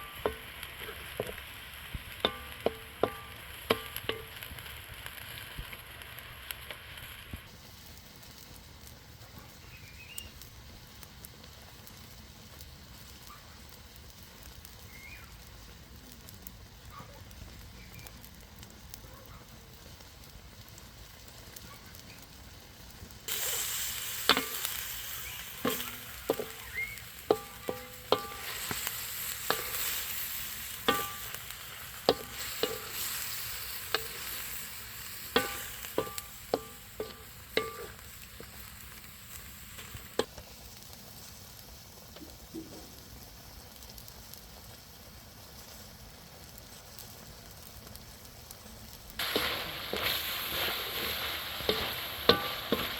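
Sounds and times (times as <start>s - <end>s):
food sizzling in hot oil: 0.0s - 52.9s
metal spoon clinking on pot: 30.8s - 31.4s, 32.1s - 33.1s, 35.4s - 38.0s.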